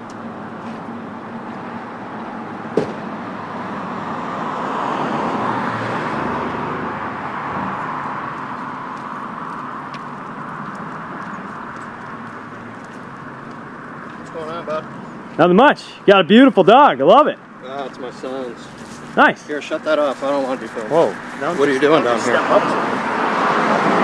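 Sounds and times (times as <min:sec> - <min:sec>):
motor vehicle driving past: 0:01.6 - 0:16.0, 0:17.6 - 0:24.0.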